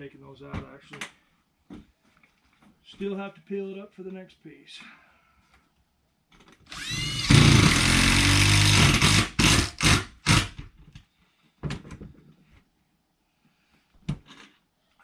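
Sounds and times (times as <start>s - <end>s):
power drill driving screw into metal: 6.7s - 10.6s.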